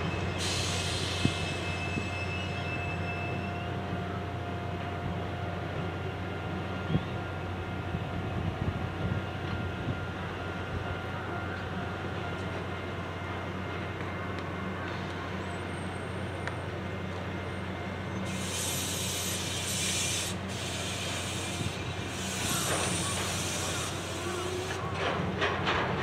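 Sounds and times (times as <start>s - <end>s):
train brakes hissing: 0.0s - 3.8s, 18.1s - 25.0s
locomotive low hum: 0.0s - 26.0s.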